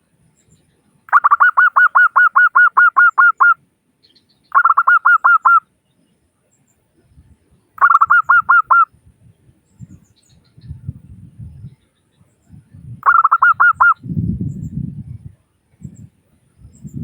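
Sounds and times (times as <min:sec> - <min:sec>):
dove cooing: 0:01.1 - 0:03.6, 0:04.5 - 0:05.6, 0:07.8 - 0:08.9, 0:13.0 - 0:14.0.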